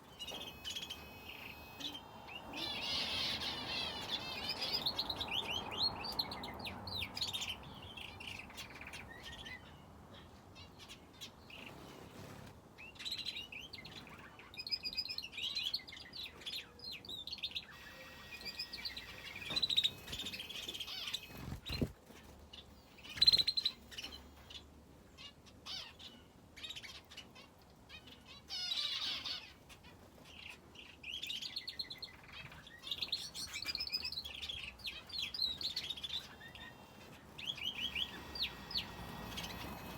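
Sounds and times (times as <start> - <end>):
cage birds chirping: 0.0 - 39.9
wings fluttering: 17.8 - 22.4, 35.6 - 39.9.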